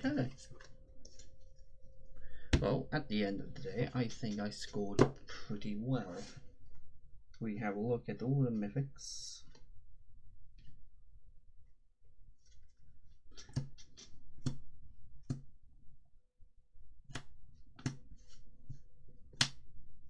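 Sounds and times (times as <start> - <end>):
cards clicking and tapping: 19.4 - 19.6.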